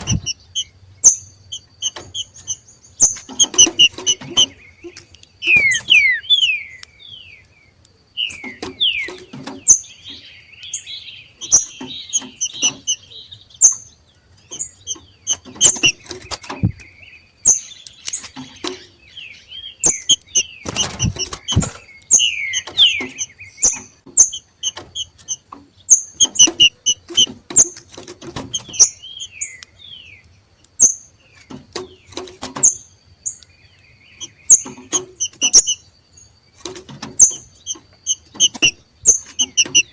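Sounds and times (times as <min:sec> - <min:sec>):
wing flutter: 0:00.0 - 0:00.7, 0:01.5 - 0:04.5, 0:05.4 - 0:06.3, 0:19.9 - 0:23.8
birds chirping: 0:00.0 - 0:39.9.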